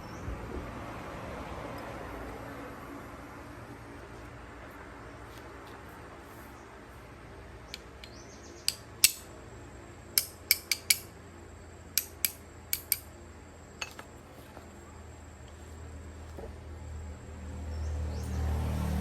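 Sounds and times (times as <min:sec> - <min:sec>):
metal tools clinking: 0:13.8 - 0:14.1.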